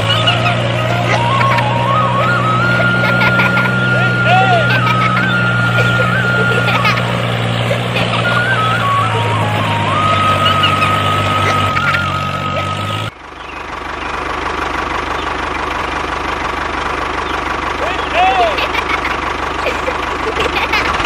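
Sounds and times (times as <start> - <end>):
high tone stepping in pitch: 0.0 - 13.1
engine idling with rapid pulses: 0.0 - 21.0
tractor engine running: 0.0 - 21.0.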